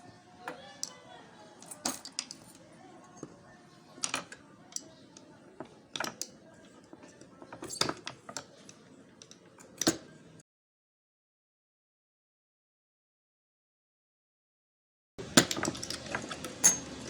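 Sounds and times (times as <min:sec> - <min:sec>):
small metal parts clicking: 0:01.6 - 0:02.6.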